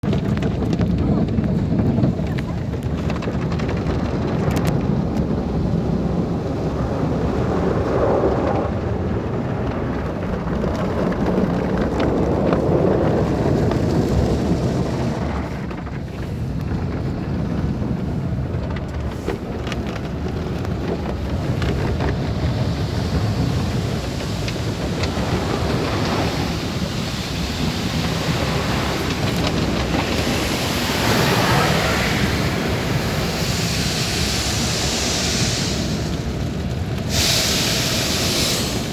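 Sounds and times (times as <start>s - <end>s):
car wash water spray: 21.3s - 38.9s.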